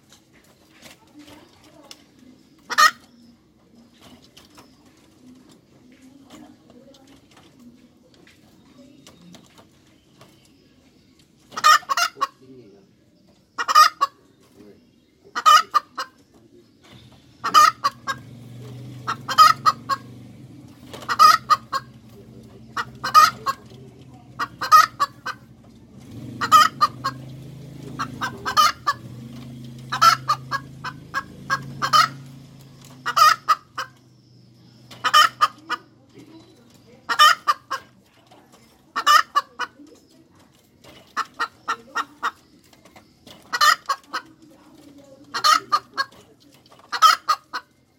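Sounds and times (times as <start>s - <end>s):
hen cackling: 2.6s - 3.1s, 11.5s - 12.4s, 13.6s - 14.2s, 15.3s - 16.2s, 17.2s - 20.2s, 20.8s - 34.0s, 34.8s - 36.0s, 37.0s - 38.0s, 38.9s - 39.8s, 41.1s - 42.5s, 43.4s - 44.4s, 45.3s - 46.2s, 46.8s - 47.8s.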